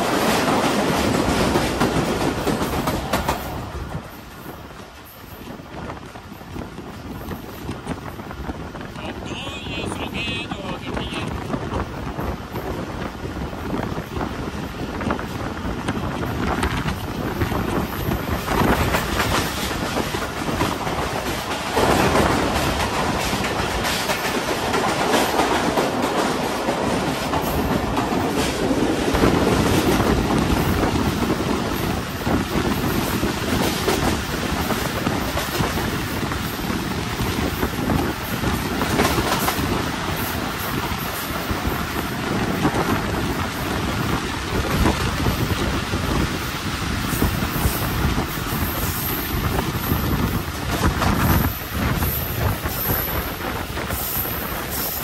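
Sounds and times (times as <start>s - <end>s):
wheels clattering over rail joints: 14.9s - 46.4s.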